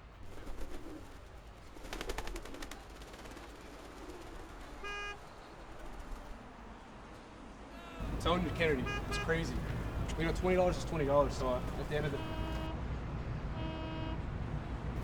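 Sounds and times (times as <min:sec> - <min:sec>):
street background noise: 0:00.0 - 0:15.0
car horn beep: 0:04.8 - 0:05.2, 0:08.0 - 0:12.8, 0:13.6 - 0:14.3.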